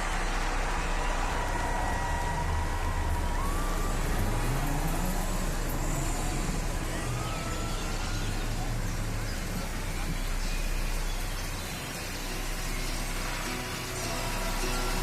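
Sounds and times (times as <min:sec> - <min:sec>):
concert crowd din: 0:00.0 - 0:15.0.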